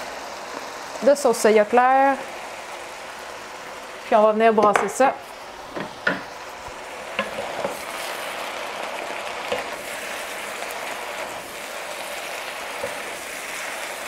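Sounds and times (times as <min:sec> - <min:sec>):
food sizzling in a wok: 0:00.0 - 0:14.0
wooden spatula knocking on pan: 0:05.7 - 0:06.3, 0:07.1 - 0:07.8.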